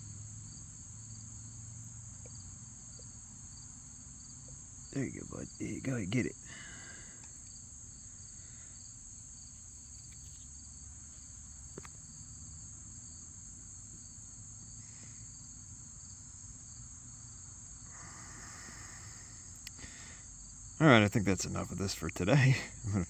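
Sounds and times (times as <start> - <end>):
high-pitched insect chorus: 0.0 - 23.0
low outdoor rumble: 4.9 - 7.3.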